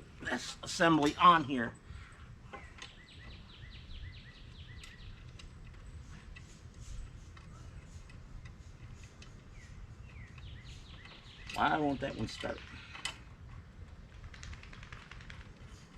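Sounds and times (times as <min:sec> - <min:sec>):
bird chirping: 0:02.0 - 0:12.9.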